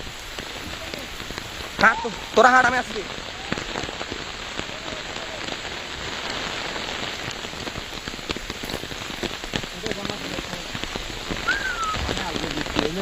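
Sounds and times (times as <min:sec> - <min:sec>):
raindrops ticking on surfaces: 0:00.0 - 0:13.0
steady rain: 0:00.0 - 0:13.0.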